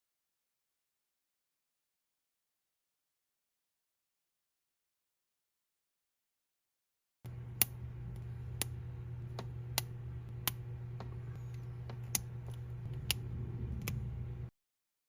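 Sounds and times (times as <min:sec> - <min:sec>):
steady low hum: 0:07.3 - 0:14.6.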